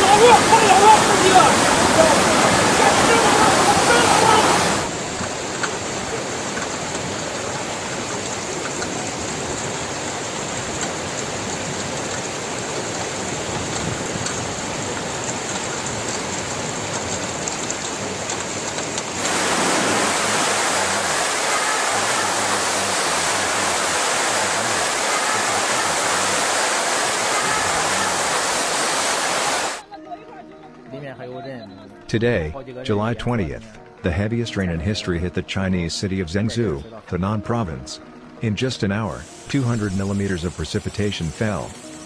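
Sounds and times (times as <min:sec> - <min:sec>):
floodwater rushing: 0:00.0 - 0:29.9, 0:39.2 - 0:42.0.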